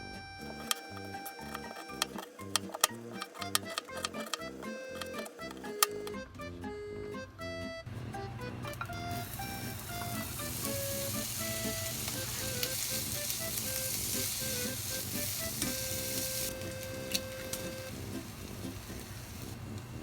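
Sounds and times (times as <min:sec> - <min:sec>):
light background music: 0:00.0 - 0:19.6
food sizzling in a pan: 0:09.1 - 0:20.0.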